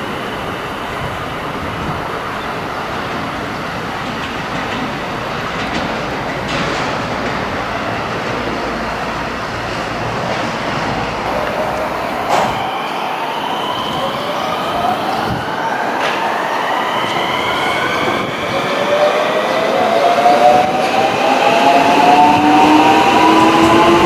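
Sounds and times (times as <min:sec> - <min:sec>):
electric train rolling: 0:00.0 - 0:24.0
wheels clattering over rail joints: 0:01.6 - 0:12.6.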